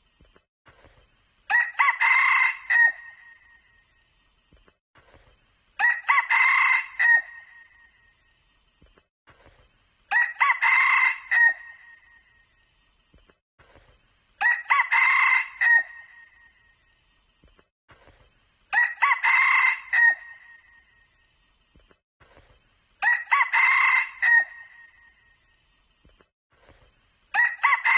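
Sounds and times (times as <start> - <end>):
rooster crowing: 1.5 - 3.3, 5.8 - 7.6, 10.1 - 11.9, 14.4 - 16.2, 18.7 - 20.6, 23.0 - 25.0, 27.3 - 27.9.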